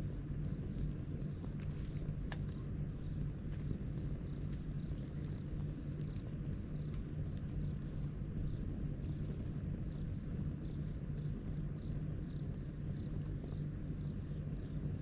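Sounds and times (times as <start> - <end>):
night insects trilling: 2.1 - 15.0.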